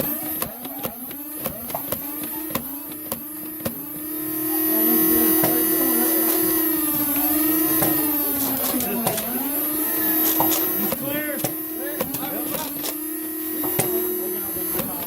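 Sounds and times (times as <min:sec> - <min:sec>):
toy blaster flywheel whining: 0:00.0 - 0:15.0.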